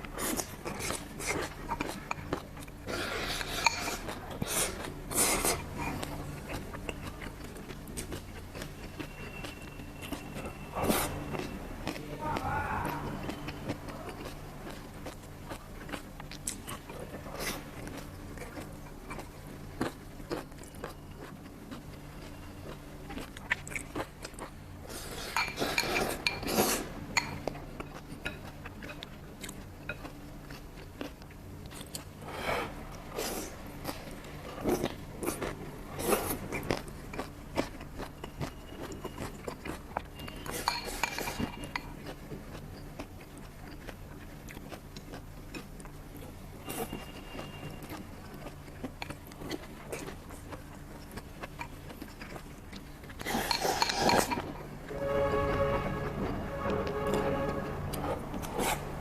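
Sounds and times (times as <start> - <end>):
low steady hum: 0.0 - 59.0
kitchen utensils and dishes clinking: 25.3 - 26.6.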